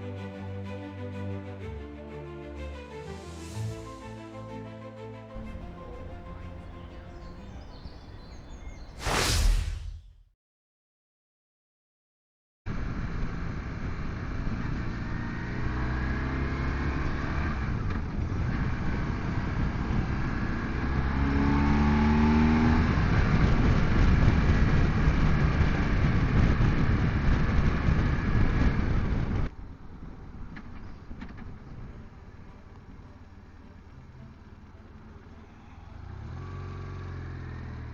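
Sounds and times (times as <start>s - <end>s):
motorcycle engine accelerating: 5.4s - 9.0s, 12.8s - 37.9s
road and wind noise: 5.4s - 9.5s, 12.7s - 37.9s.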